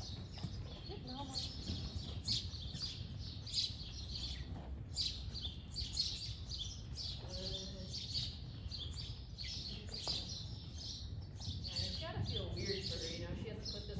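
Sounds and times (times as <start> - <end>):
small birds chirping: 0.0 - 13.9.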